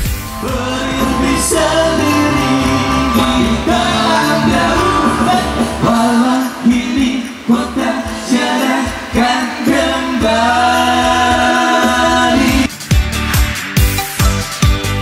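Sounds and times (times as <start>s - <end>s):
bass line: 0.0s - 8.2s
guitar: 0.0s - 15.0s
person singing: 0.2s - 12.7s.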